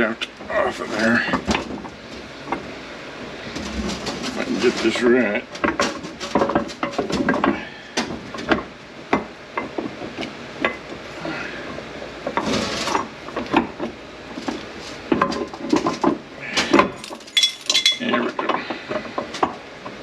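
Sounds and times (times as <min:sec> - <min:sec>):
metal parts clinking: 0:16.9 - 0:18.2.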